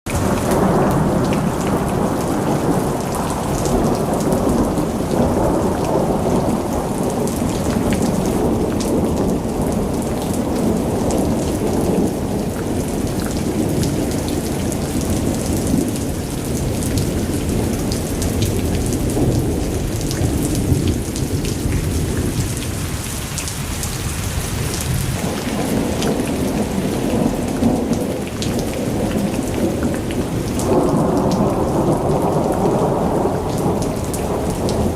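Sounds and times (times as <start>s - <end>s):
rain pattering: 0.1s - 34.9s
thunder rumbling: 0.1s - 34.9s.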